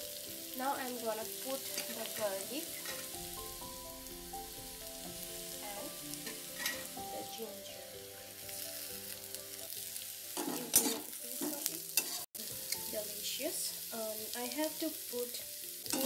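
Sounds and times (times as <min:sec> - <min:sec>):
onions sizzling in hot oil: 0:00.0 - 0:16.0
metal spatula scraping and clinking: 0:01.7 - 0:03.2, 0:06.2 - 0:07.0, 0:10.3 - 0:12.9.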